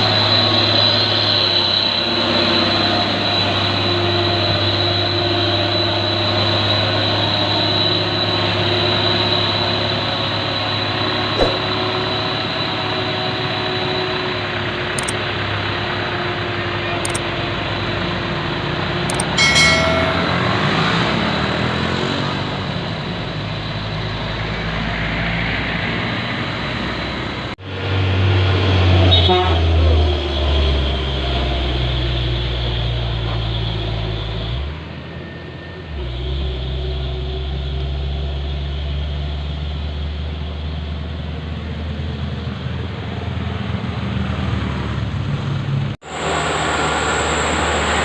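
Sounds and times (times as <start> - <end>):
short clicks: 15.0 - 15.2, 17.0 - 17.2, 19.1 - 19.4.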